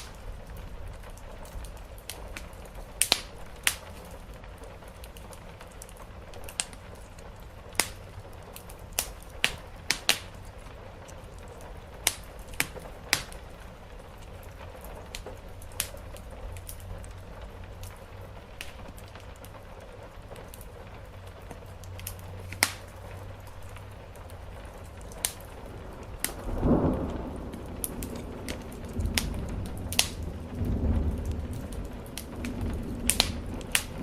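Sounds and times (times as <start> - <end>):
rain on a roof: 0.0 - 34.0
wood fire crackling and popping: 0.0 - 34.0
low rumble: 25.5 - 34.0.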